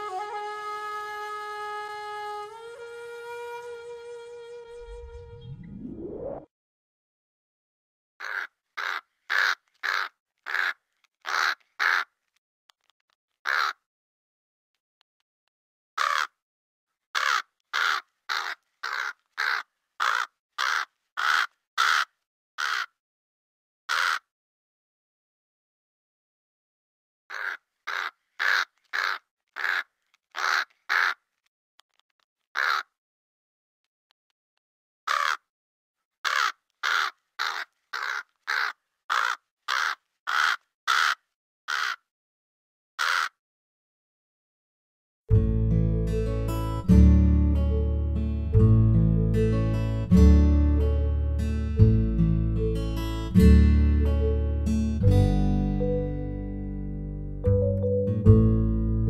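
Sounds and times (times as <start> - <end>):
crow cawing: 8.2 - 12.1, 13.4 - 13.8, 16.0 - 16.4, 17.2 - 23.0, 23.9 - 24.3, 27.3 - 31.2, 32.6 - 32.9, 35.1 - 35.5, 36.2 - 42.0, 43.0 - 43.4.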